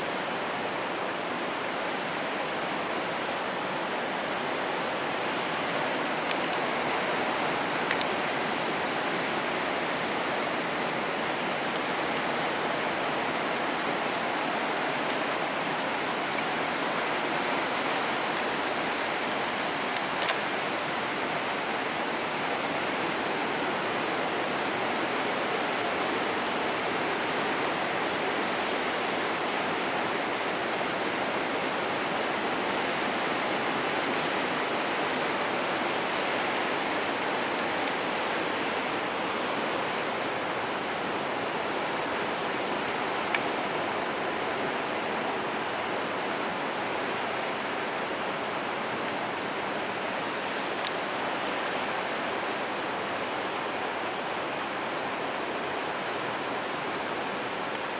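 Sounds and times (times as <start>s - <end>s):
faint clicks: 7.9s - 8.1s.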